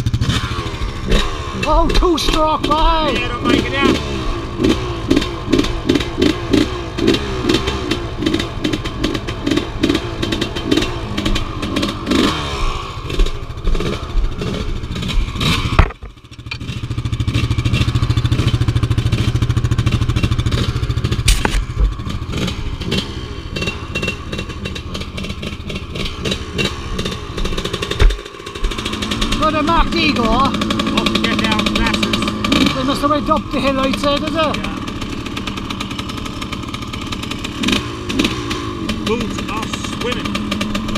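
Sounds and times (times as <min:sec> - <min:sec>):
off-road engine running under load: 0:00.0 - 0:40.9
rattles and knocks: 0:13.1 - 0:32.6.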